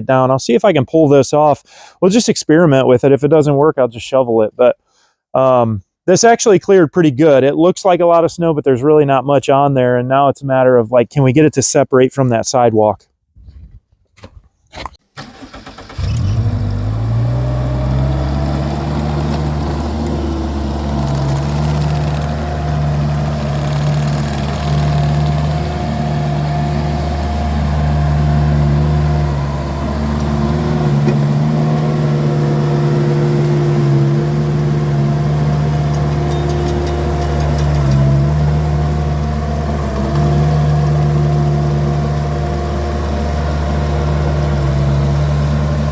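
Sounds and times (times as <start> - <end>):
engine starting and running: 15.0 - 45.9.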